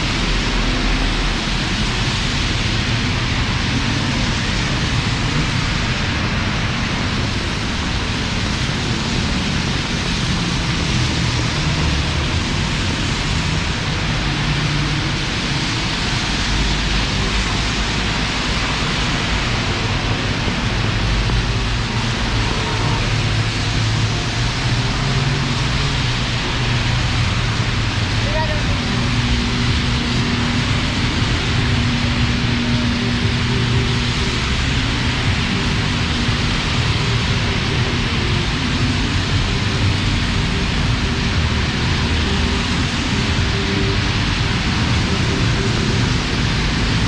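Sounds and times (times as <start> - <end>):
heavy rain falling: 0.0 - 47.0
low rumble: 10.5 - 47.0.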